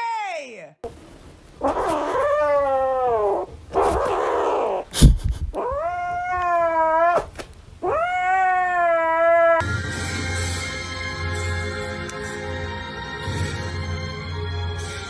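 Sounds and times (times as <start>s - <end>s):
cat yowling: 1.6s - 4.8s, 5.6s - 9.6s.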